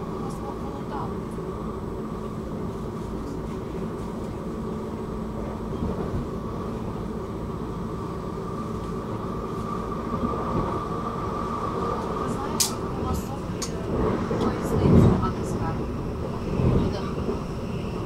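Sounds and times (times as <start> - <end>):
train wheels rumbling on track: 0.0 - 18.0.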